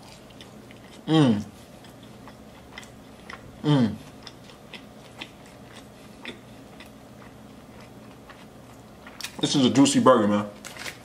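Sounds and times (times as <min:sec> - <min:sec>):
person chewing with wet clicks: 0:00.0 - 0:09.5
faint steady hum: 0:00.0 - 0:11.0.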